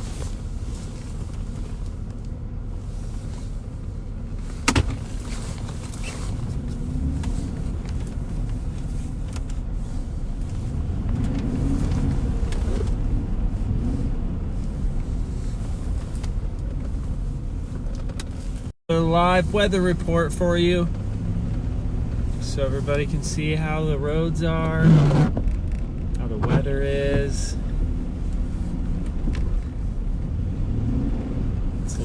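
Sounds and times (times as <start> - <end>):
car engine and road rumble: 0.0 - 32.0.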